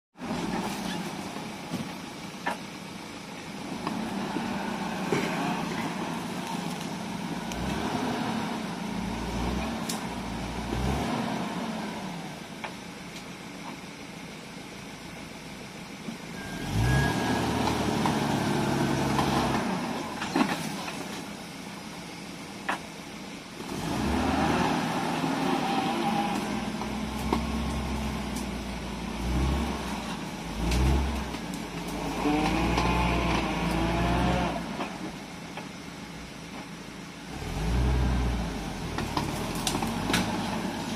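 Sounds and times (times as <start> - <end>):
off-road vehicle engine revving: 3.5 - 12.4, 16.3 - 21.3, 23.6 - 35.4, 37.2 - 40.9.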